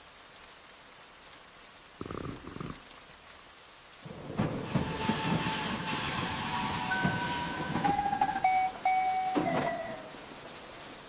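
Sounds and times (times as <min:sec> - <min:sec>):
light rain: 0:00.0 - 0:11.0
thunder rumbling: 0:04.0 - 0:11.0.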